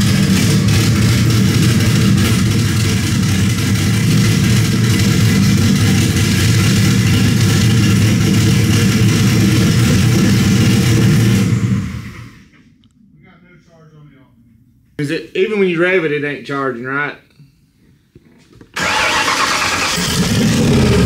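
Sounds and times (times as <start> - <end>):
car engine running loud: 0.0 - 12.4, 18.8 - 21.0.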